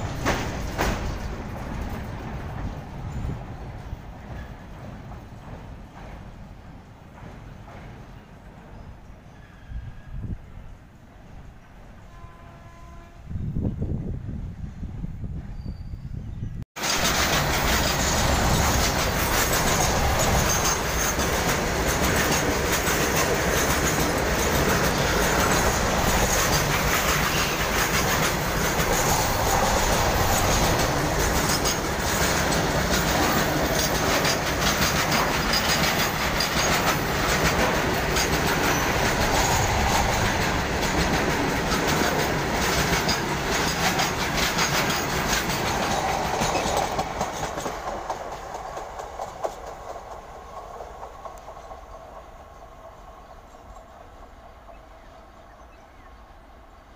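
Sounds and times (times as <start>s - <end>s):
wheels clattering over rail joints: 0.0s - 6.4s, 16.8s - 51.9s
freight wagons rumbling past: 16.8s - 52.1s.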